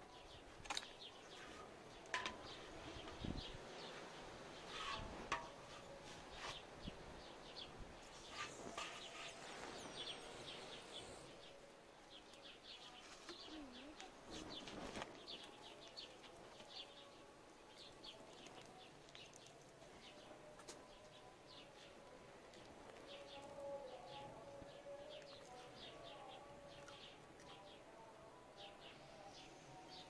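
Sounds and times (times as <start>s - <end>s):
small birds chirping: 6.8s - 22.0s.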